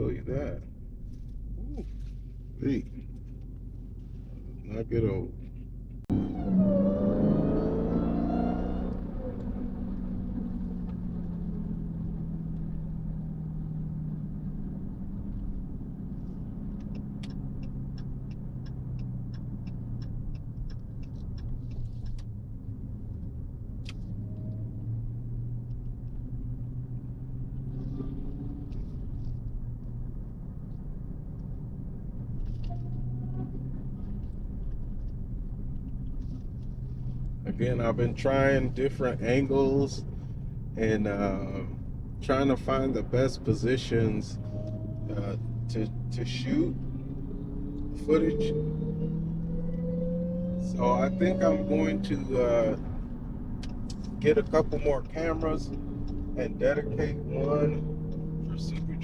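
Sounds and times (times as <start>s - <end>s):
car engine running: 0.0s - 59.0s
light ticks: 16.7s - 22.3s.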